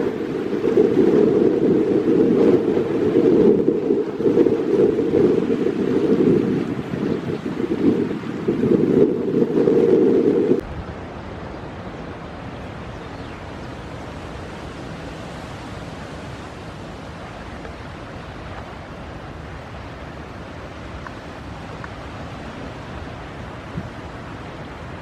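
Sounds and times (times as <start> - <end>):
choppy water: 0.0 - 12.9
wind buffeting microphone: 0.0 - 25.0.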